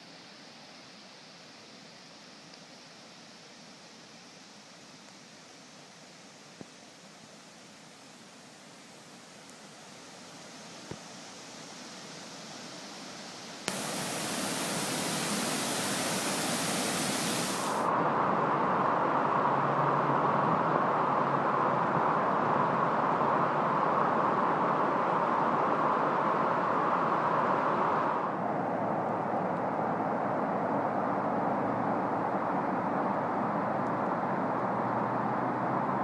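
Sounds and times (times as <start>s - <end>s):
floodwater rushing over a road: 12.9s - 28.3s.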